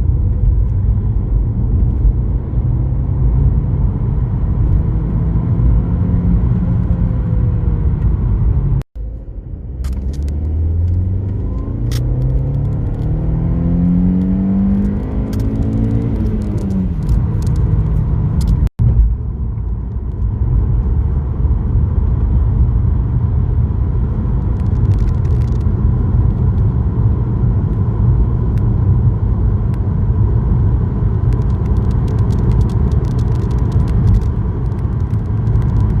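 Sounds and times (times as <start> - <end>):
engine and road noise drone: 0.0 - 36.0
car engine accelerating: 0.1 - 19.6.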